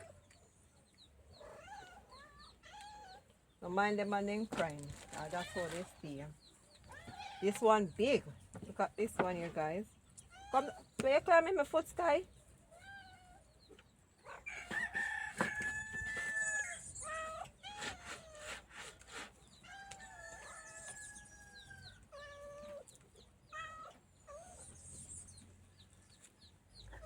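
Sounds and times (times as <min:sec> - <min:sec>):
rooster crowing: 0:14.4 - 0:17.0.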